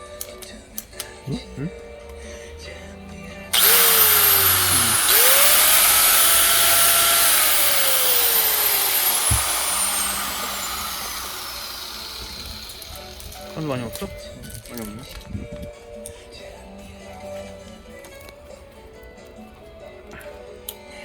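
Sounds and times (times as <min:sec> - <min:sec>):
angle grinder motor whining: 0:03.5 - 0:13.6.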